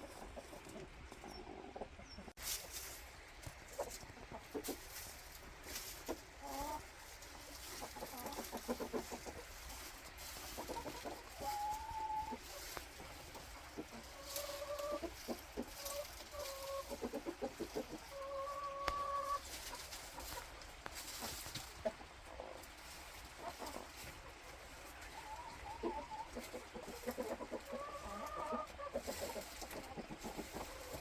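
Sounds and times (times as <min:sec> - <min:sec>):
chickens clucking: 0:00.0 - 0:31.0
chicken drawn-out calls: 0:06.0 - 0:20.6, 0:23.4 - 0:31.0.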